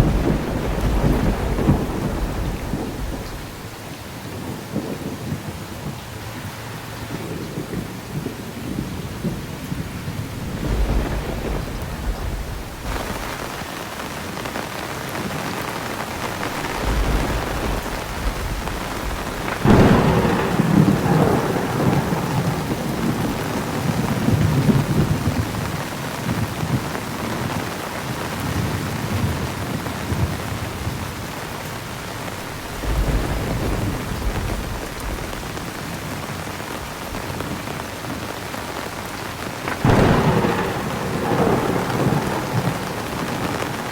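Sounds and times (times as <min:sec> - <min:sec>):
thunder crack: 0:00.0 - 0:05.4, 0:08.1 - 0:26.8, 0:32.1 - 0:37.7, 0:39.4 - 0:43.9
thunder rumbling: 0:00.0 - 0:06.2, 0:07.2 - 0:27.8, 0:28.4 - 0:43.9
heavy rain: 0:00.0 - 0:43.9.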